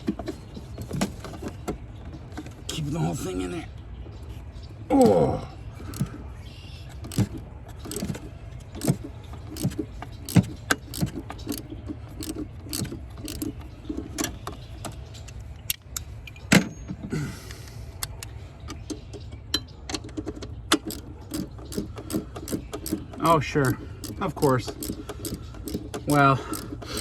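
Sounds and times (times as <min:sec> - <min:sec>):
metal tools clinking: 0:07.1 - 0:07.3, 0:07.9 - 0:08.2, 0:09.6 - 0:11.6, 0:12.2 - 0:13.5, 0:20.9 - 0:27.0.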